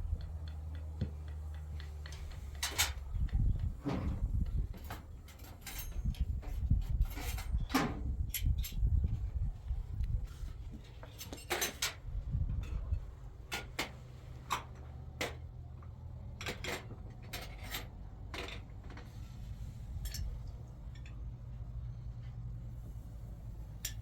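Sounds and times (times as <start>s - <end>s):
low steady hum: 0.0s - 5.0s
light knocks and clinks: 0.2s - 9.2s, 10.7s - 12.0s, 20.0s - 21.3s.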